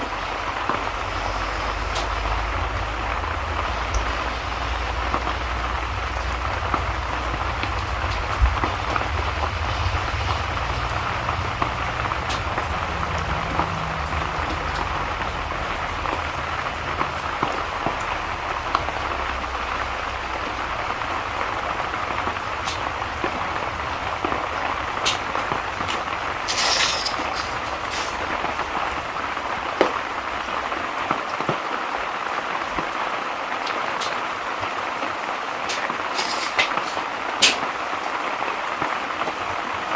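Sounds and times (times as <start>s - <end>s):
low rumble: 0.0s - 31.0s
sharp crackles: 0.0s - 31.4s
steady rain: 0.0s - 39.9s.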